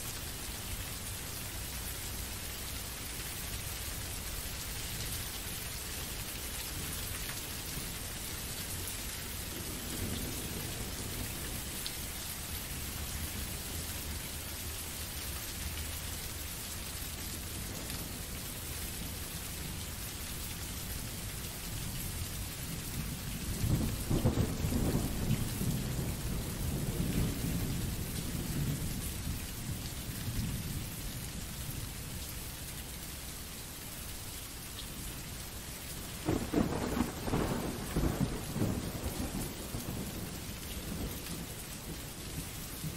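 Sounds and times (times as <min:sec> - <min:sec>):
steady rain: 0:00.0 - 0:42.9
thunder rumble: 0:23.6 - 0:28.8, 0:36.2 - 0:41.2.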